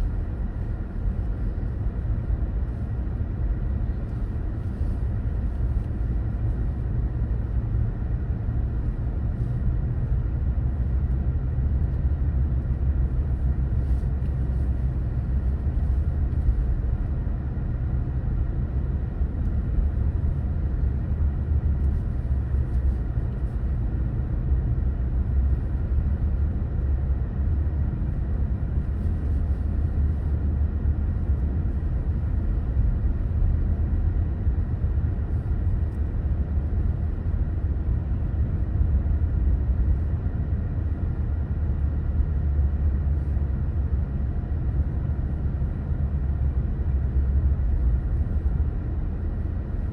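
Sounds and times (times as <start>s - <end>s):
car road and engine rumble: 0.0s - 49.9s.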